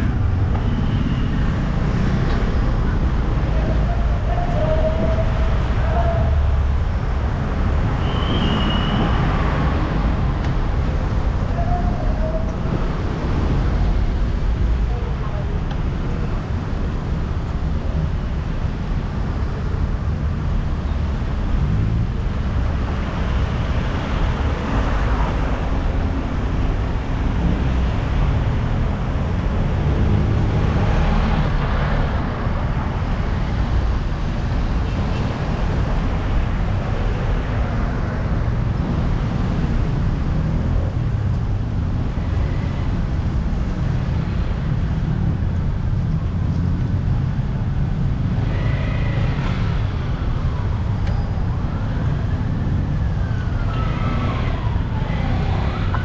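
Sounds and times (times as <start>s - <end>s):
road vehicle rumble: 0.0s - 56.0s.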